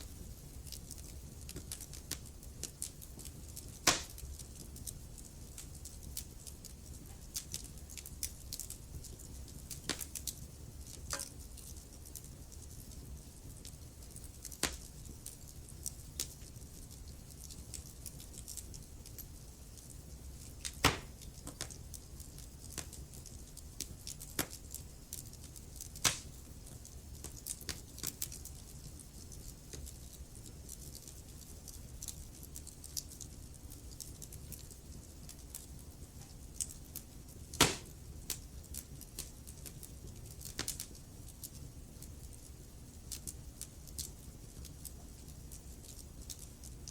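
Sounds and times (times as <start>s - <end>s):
wood fire crackling: 0.0s - 46.9s
sharp pops of burning logs: 1.5s - 4.3s, 9.8s - 10.3s, 14.5s - 14.9s, 20.6s - 21.8s, 24.3s - 24.6s, 26.0s - 26.4s, 37.5s - 38.4s, 40.5s - 40.9s.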